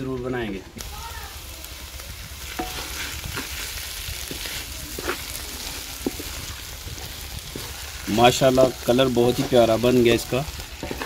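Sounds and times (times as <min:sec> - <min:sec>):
carrots sizzling in ghee: 0:00.8 - 0:11.0
wooden spoon scraping a pot: 0:02.4 - 0:11.0.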